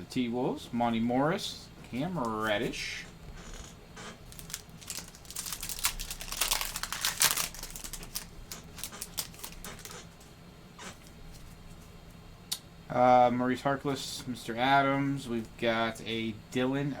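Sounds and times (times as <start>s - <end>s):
foil wrapper crinkling and tearing: 4.3s - 10.1s.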